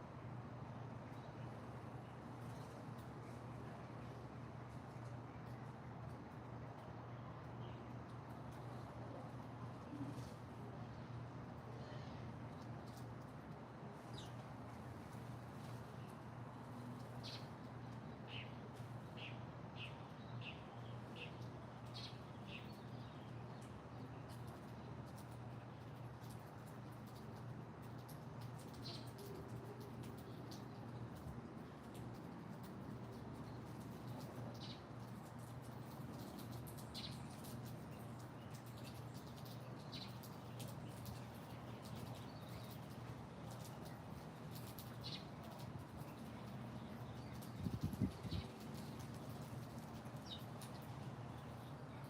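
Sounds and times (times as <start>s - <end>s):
small bird chirping: 17.0s - 25.3s, 27.9s - 30.9s, 33.1s - 52.0s.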